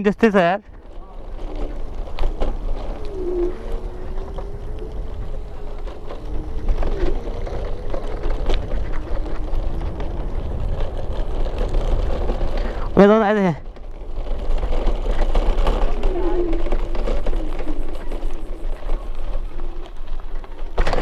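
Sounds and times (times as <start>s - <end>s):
wind buffeting microphone: 0.0s - 21.0s
faint wavering drone: 1.0s - 12.5s.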